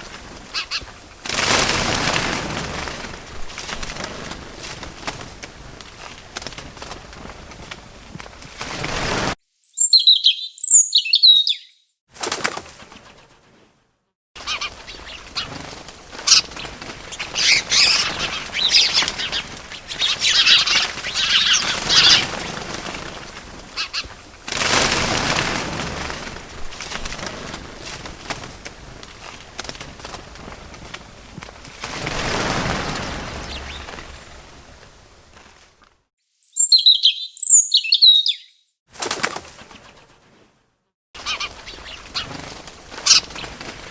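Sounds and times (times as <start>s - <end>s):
wing flapping and rustling: 0.0s - 9.4s, 12.1s - 36.1s, 38.9s - 43.9s
small bird chirping: 9.5s - 12.0s, 33.0s - 34.2s, 36.3s - 38.8s.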